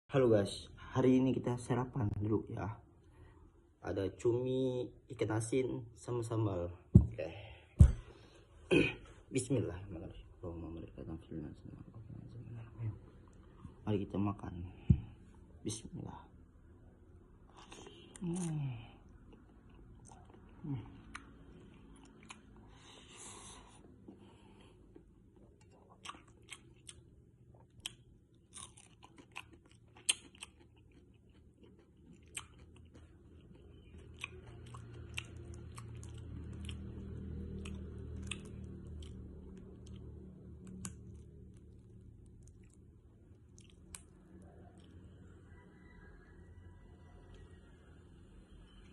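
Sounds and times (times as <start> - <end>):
chewing and crunching food: 17.5 - 23.0, 24.0 - 48.9.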